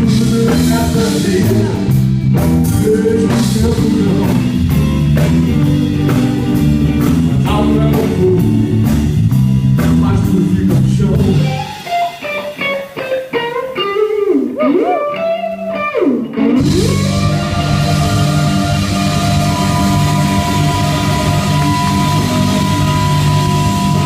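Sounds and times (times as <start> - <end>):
live rock band playing: 0.0 - 24.0
electric guitar solo: 11.4 - 24.0.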